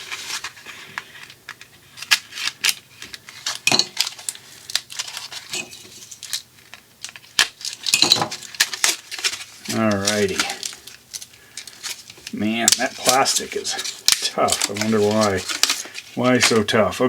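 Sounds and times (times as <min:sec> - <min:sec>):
plastic packaging being cut open: 0:07.1 - 0:16.7.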